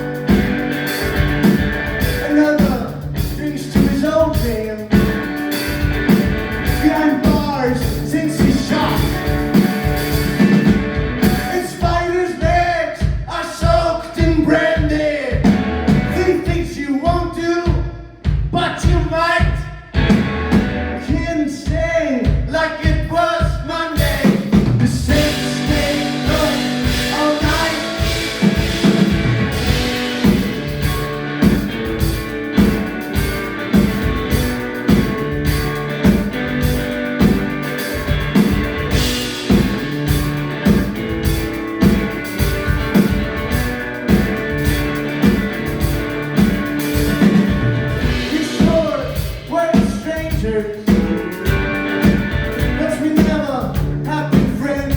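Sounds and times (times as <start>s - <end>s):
electric guitar: 0.0s - 12.1s, 15.4s - 16.5s, 20.0s - 21.2s, 24.0s - 54.9s
steady drum beat: 0.0s - 54.9s
person singing: 2.2s - 5.1s, 6.7s - 9.4s, 21.0s - 29.0s, 48.0s - 51.3s.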